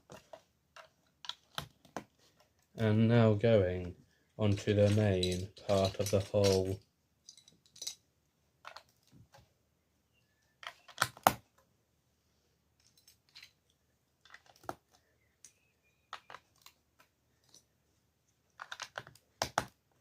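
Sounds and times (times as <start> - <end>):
plastic bricks clicking: 4.5 - 8.0, 8.6 - 9.1, 14.2 - 17.6, 18.5 - 19.8.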